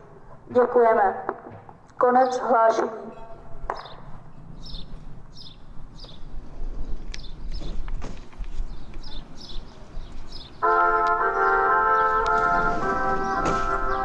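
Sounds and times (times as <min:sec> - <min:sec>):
small birds chirping: 0:02.0 - 0:10.6.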